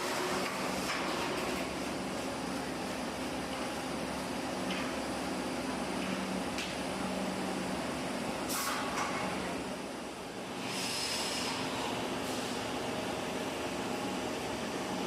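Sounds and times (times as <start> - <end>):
factory machinery humming: 0.0 - 15.0
burst of hiss: 8.5 - 8.9, 10.6 - 12.6.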